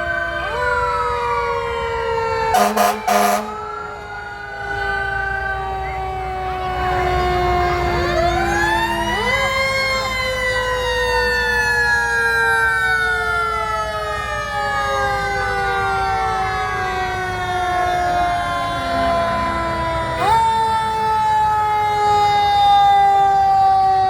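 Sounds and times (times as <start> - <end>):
sirens holding steady tones: 0.0 - 24.0.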